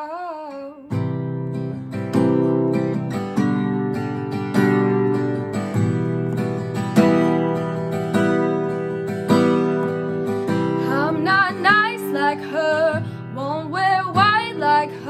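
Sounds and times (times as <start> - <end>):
person singing: 0.0 - 1.0
acoustic guitar strumming: 0.5 - 15.0.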